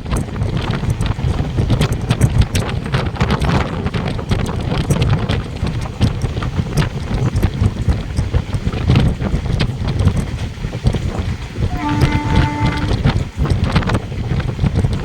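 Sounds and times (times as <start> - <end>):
train rumbling: 0.0 - 15.0
train wheels rattling and clacking: 0.0 - 15.0
wind buffeting microphone: 0.0 - 15.0.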